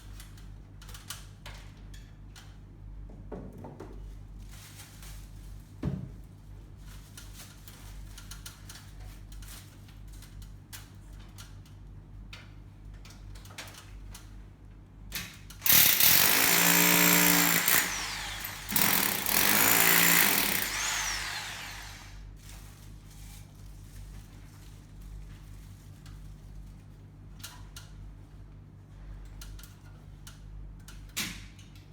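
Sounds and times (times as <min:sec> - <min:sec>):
power drill running: 0:15.6 - 0:22.2.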